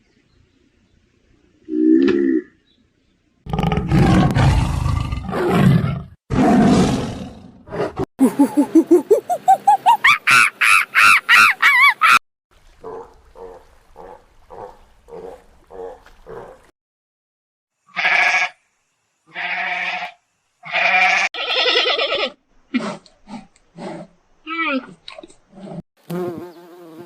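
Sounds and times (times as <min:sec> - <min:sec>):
sheep bleating: 0:17.9 - 0:18.6, 0:19.3 - 0:22.3.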